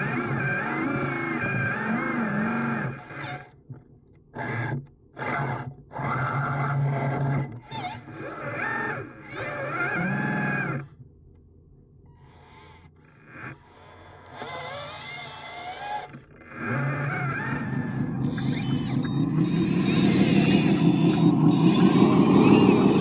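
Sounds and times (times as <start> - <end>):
small electric motors whining: 12.2 - 23.0.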